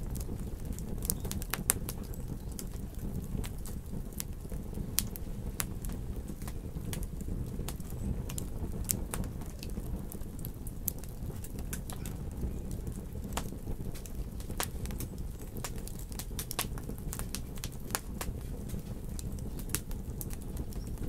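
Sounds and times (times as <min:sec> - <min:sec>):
low rumble of flames: 0:00.0 - 0:21.0
wood fire crackling and popping: 0:00.0 - 0:21.0.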